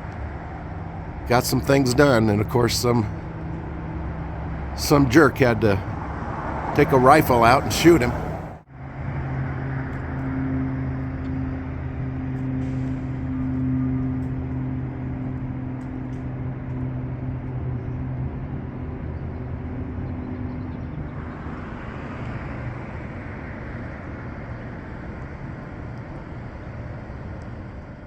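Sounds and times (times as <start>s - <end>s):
engine hum: 0.0s - 28.0s
vehicle passing by: 0.2s - 24.8s.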